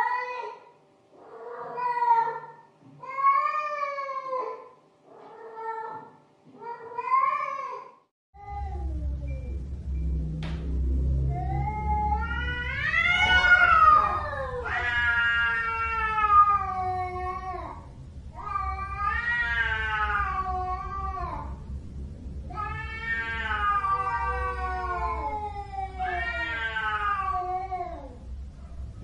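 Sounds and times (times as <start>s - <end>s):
cat yowling: 1.2s - 9.0s, 11.3s - 21.6s, 22.5s - 28.3s.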